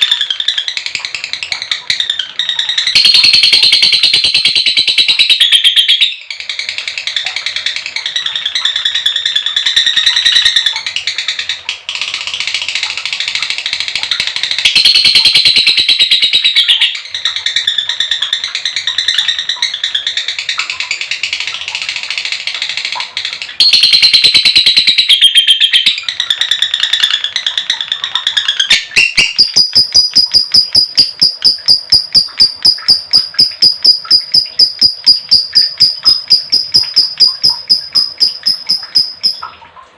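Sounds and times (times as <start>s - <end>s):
lovebird chattering trill: 0.0s - 7.4s, 14.5s - 20.8s, 23.6s - 39.5s.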